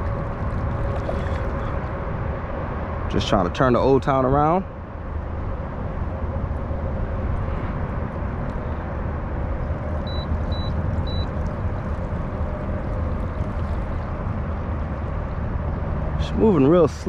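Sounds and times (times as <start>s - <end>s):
wind rumble on microphone: 0.0s - 17.0s
short high beeps: 10.1s - 11.3s.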